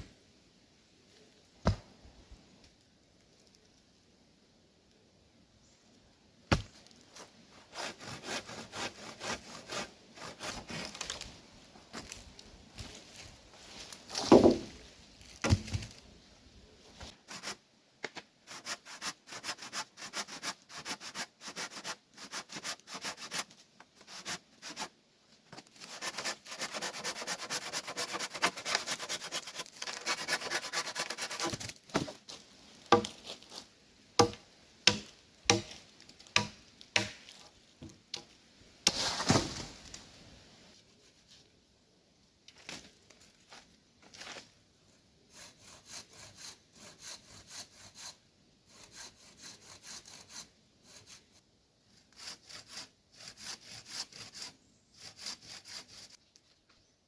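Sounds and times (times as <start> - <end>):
blade chopping wood: 6.5 - 6.7, 33.0 - 33.2, 34.2 - 35.8, 36.4 - 37.2
sawing or scraping wood: 7.2 - 11.2, 17.1 - 17.6, 18.5 - 24.9, 25.5 - 32.2, 45.3 - 51.4, 52.0 - 56.2.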